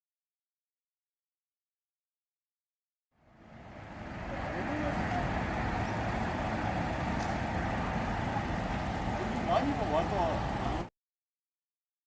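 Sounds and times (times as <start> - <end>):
low rumble of vehicle noise: 3.1 - 10.9
faint voices: 3.9 - 10.9.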